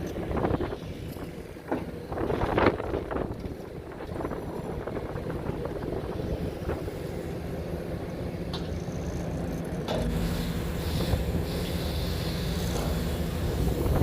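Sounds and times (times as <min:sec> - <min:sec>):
wind buffeting microphone: 0:00.0 - 0:08.5, 0:12.5 - 0:14.0
excavator diesel engine: 0:00.0 - 0:14.0.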